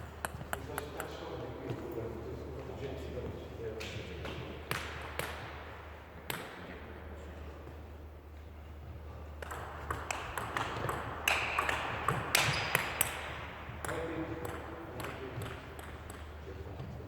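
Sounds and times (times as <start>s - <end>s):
table tennis rally: 0.0s - 7.8s, 8.5s - 17.0s
table tennis ball bouncing: 9.4s - 16.4s.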